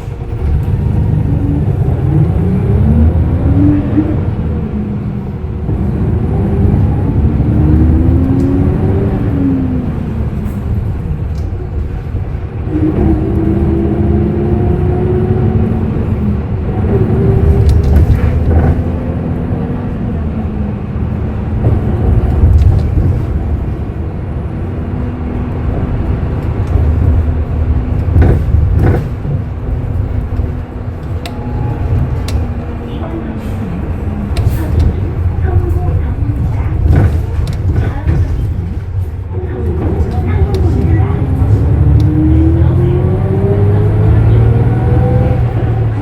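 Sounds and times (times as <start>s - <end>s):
bus engine revving: 0.0s - 46.0s.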